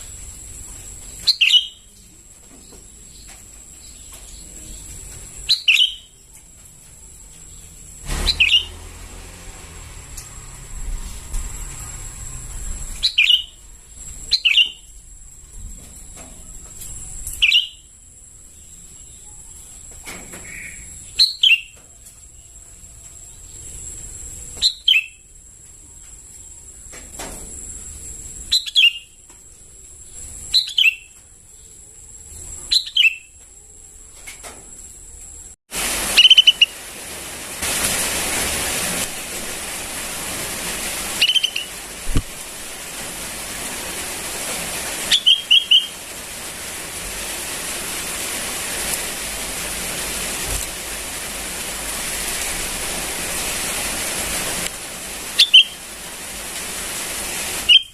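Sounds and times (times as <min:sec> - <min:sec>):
steady hiss: 0:00.0 - 0:57.9
bird chirps sliding downward: 0:01.3 - 0:01.8, 0:05.5 - 0:06.1, 0:08.2 - 0:08.8, 0:13.0 - 0:13.6, 0:14.3 - 0:14.8, 0:17.4 - 0:17.8, 0:41.1 - 0:41.8, 0:45.1 - 0:46.0.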